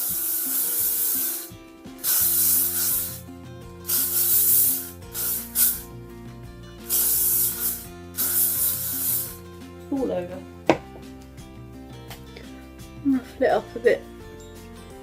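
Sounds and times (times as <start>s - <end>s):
aerosol hairspray hissing: 0.0s - 5.9s, 6.9s - 9.4s.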